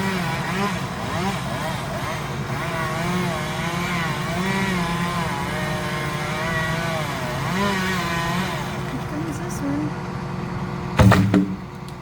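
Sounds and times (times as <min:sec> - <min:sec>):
chainsaw revving while cutting: 0:00.0 - 0:09.5.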